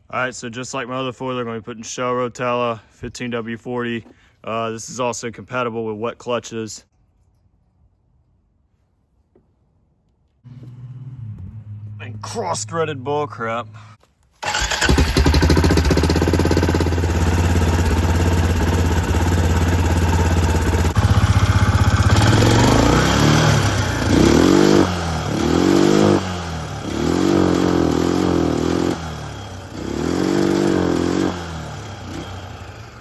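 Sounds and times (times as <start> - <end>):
atv engine idling and revving: 13.5 - 33.0.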